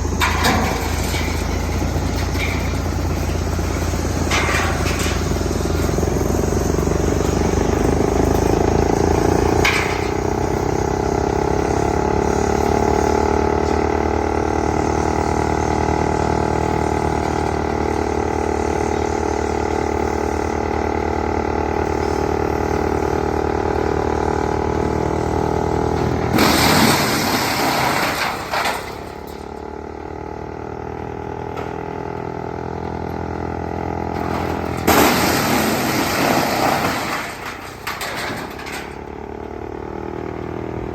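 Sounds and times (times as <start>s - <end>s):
wood chipper droning hum: 0.0s - 40.9s.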